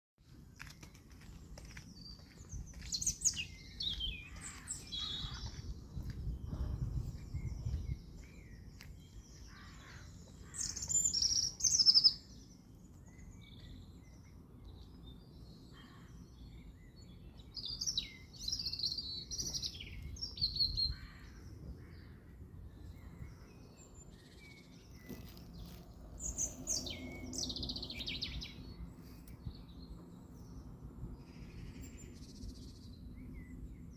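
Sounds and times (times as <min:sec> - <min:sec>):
songbird singing: 0:00.2 - 0:33.9
low rumble: 0:04.1 - 0:10.4.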